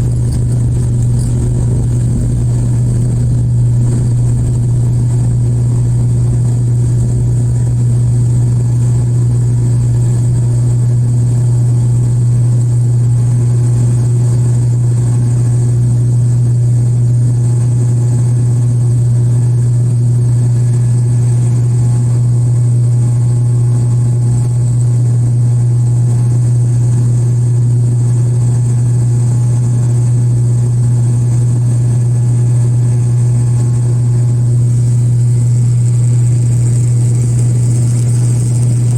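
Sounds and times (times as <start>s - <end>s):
turboprop engine drone in cabin: 0.0s - 38.9s.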